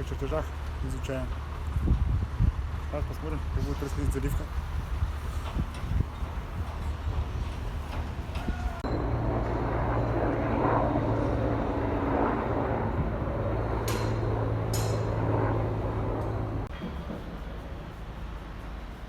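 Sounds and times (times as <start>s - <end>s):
heavy machinery humming: 4.1s - 19.0s.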